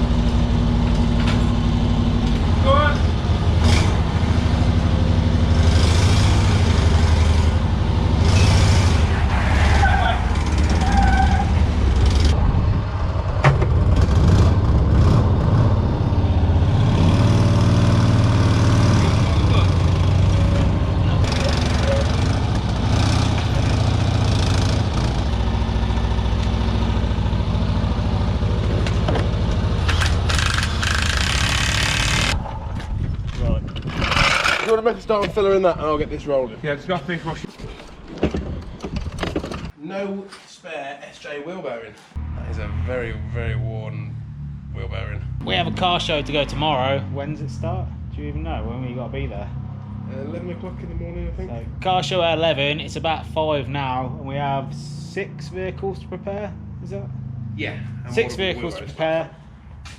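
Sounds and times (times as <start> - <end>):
vehicle engine running: 11.5 - 32.4.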